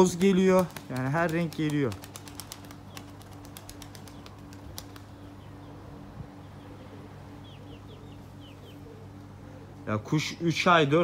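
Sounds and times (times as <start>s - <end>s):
steady low hum: 0.0s - 11.0s
small bird chirping: 7.4s - 8.9s.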